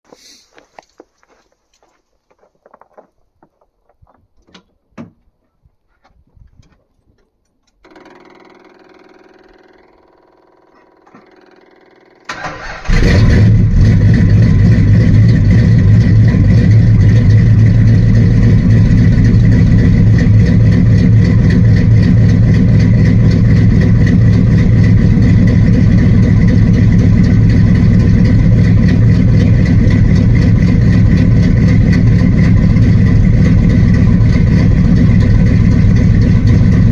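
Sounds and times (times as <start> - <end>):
car engine starting and running: 7.7 - 36.9.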